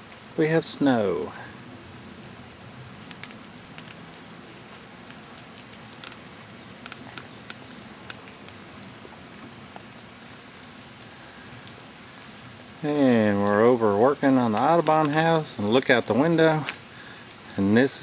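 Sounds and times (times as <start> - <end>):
wet snow falling hiss: 0.0 - 18.0
sharp ticks on a surface: 5.7 - 8.6.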